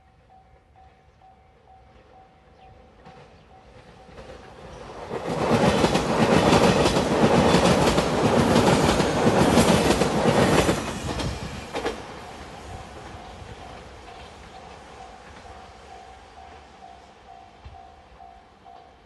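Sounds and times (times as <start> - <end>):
train passing: 0.0 - 19.0
wheels clicking over rail joints: 3.0 - 15.8.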